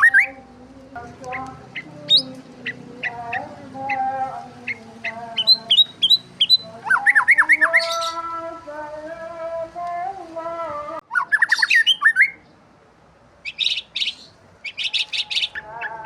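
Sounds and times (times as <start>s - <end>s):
birds chirping and squawking: 0.0s - 8.6s, 11.0s - 12.6s, 13.4s - 16.0s.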